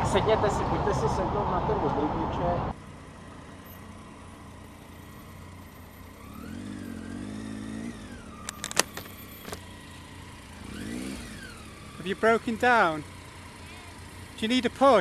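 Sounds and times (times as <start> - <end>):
vehicle engine running and revving: 2.7 - 15.0
sharp clicks: 8.4 - 9.6.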